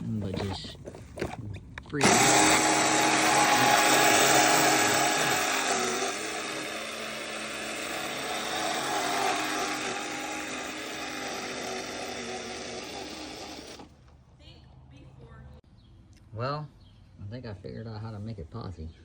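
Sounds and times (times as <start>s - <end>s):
electric motor whining: 2.0s - 14.0s.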